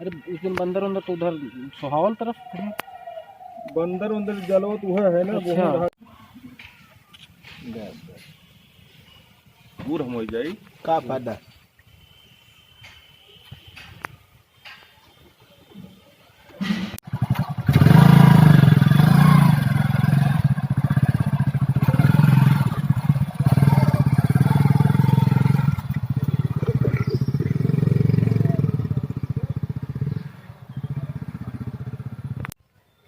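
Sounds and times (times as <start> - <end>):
vehicle engine idling: 17.0 - 32.6.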